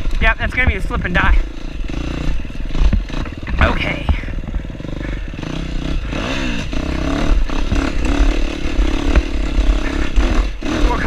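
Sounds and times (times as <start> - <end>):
dirt bike engine revving: 0.0 - 11.0
bike knocks and clatter: 2.7 - 4.8.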